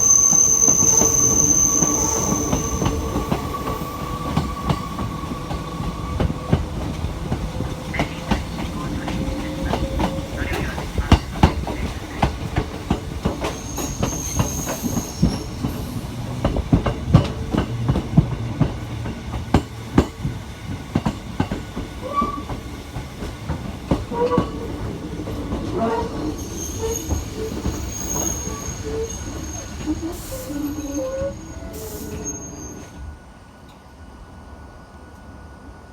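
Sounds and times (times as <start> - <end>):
high wheel squeal: 0.0 - 12.3, 13.4 - 16.0, 26.0 - 33.0
train rumble: 0.0 - 34.3
wheels clicking on track: 2.3 - 20.4.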